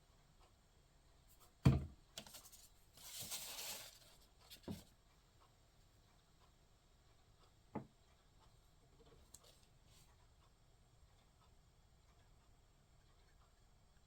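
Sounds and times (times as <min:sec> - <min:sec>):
thump on tabletop: 0:01.6 - 0:01.9.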